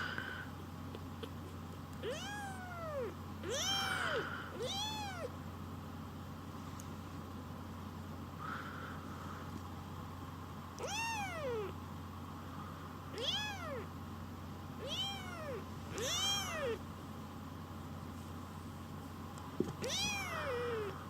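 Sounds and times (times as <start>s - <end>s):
kitten meowing: 2.0s - 5.3s, 10.8s - 11.7s, 13.2s - 13.9s, 14.8s - 16.8s, 19.8s - 21.0s.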